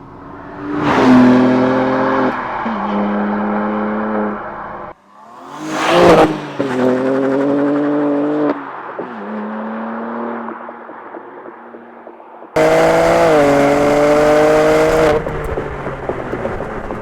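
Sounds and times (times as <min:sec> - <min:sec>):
car engine and exhaust revving: 0:00.0 - 0:17.0.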